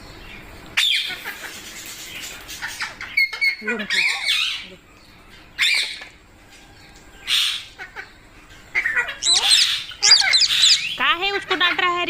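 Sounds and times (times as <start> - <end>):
parrot squawking: 8.7 - 11.6.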